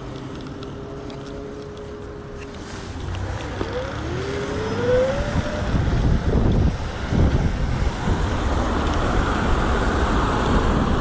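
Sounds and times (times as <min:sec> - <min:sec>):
road and wind rumble: 0:00.0 - 0:11.0
motor whine rising in pitch: 0:03.5 - 0:06.2.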